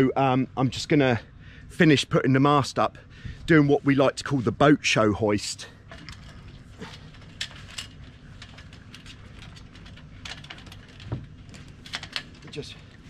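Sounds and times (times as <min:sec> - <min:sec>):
low steady background noise: 0:00.0 - 0:13.0
clicks and knocks of rigging fittings: 0:05.8 - 0:13.0.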